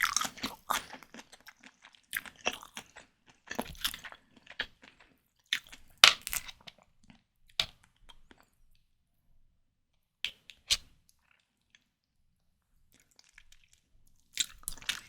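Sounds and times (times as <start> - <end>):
crunchy chewing: 0.0 - 7.7, 12.9 - 15.0.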